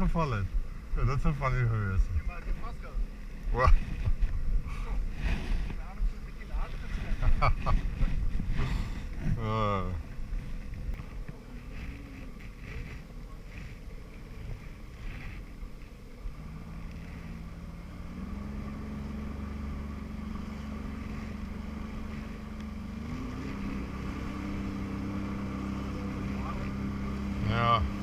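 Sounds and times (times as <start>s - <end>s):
jet ski engine running: 0.0s - 28.0s
rushing wind: 0.0s - 28.0s
water noise: 0.0s - 28.0s.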